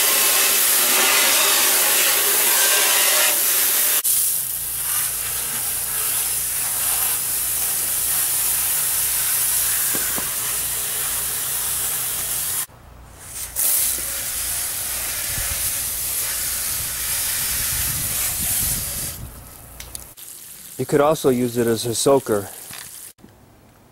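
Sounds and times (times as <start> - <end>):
water spraying from jets: 3.4 - 12.7, 13.4 - 23.2.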